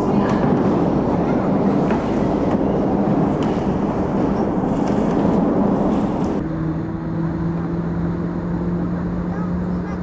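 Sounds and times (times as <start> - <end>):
engine hum: 0.0 - 10.0
rumbling vehicle noise: 0.0 - 10.0.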